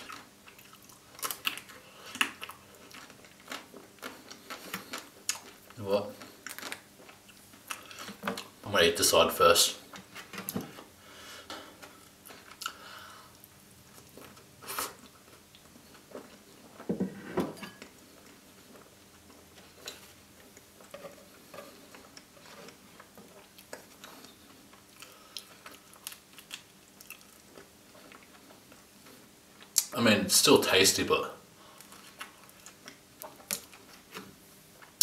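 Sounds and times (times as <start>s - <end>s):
biscuit crunching: 0.0s - 8.6s, 17.8s - 29.9s
wet chewing: 0.0s - 8.6s, 18.0s - 29.9s.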